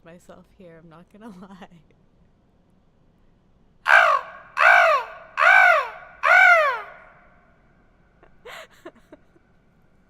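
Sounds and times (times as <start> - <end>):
woman imitating crow caws: 3.9 - 7.2.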